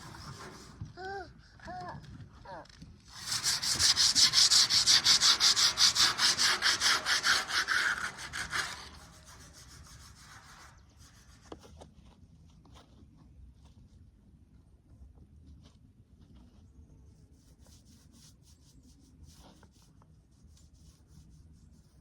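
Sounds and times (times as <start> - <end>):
scrubbing rusty metal grill: 0.0 - 1.0, 3.1 - 11.5.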